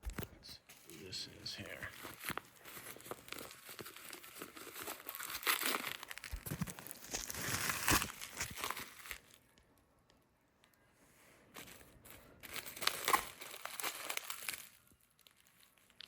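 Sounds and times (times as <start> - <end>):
packaging crinkling and tearing: 0.1 - 9.6, 11.5 - 16.0.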